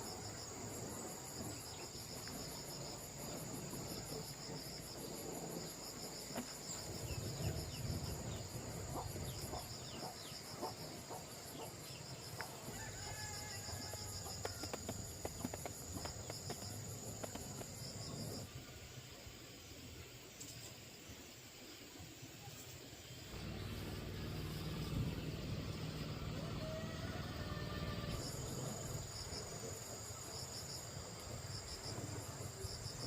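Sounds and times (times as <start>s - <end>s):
insects chirping trill: 0.0s - 33.0s.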